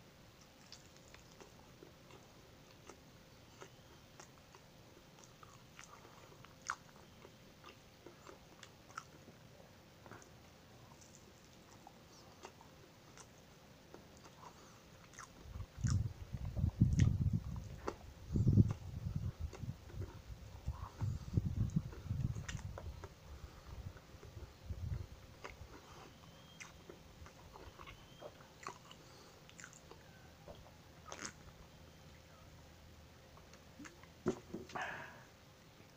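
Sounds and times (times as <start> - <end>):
person chewing: 0.4 - 9.2, 10.0 - 31.5
wet mouth clicks: 15.1 - 18.0.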